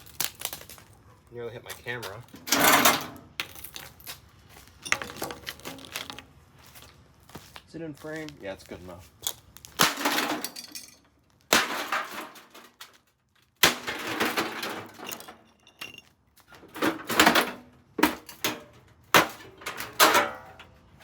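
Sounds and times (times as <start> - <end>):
breaking pieces clattering: 2.4 - 4.2, 9.7 - 16.0.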